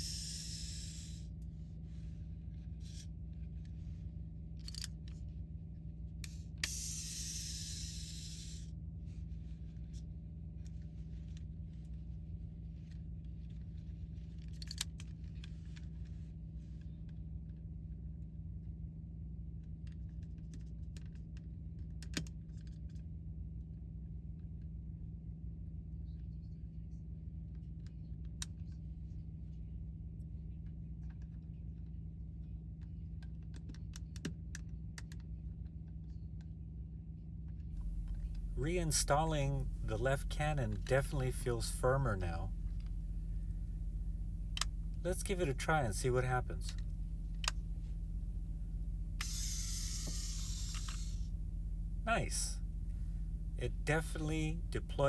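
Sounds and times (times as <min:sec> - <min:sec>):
steady low hum: 0:37.8 - 0:55.0.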